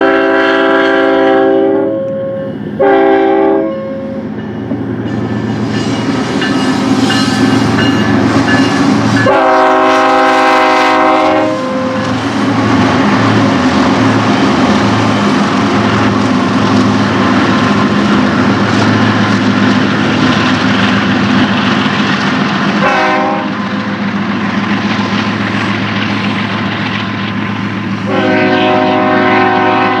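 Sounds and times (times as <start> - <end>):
locomotive air horn: 0.0 - 4.2, 9.2 - 12.1, 22.8 - 23.6, 28.0 - 30.0
train rumbling past: 0.0 - 30.0.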